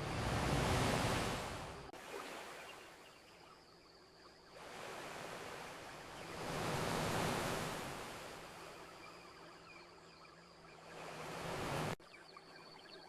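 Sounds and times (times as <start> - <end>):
ocean waves washing onto beach: 0.0 - 2.9, 4.6 - 8.8, 10.8 - 12.0.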